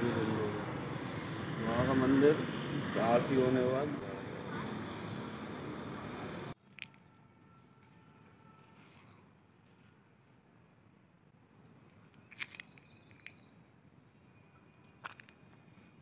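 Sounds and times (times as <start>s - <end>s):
small bird chirping: 8.0s - 9.3s, 11.4s - 15.0s.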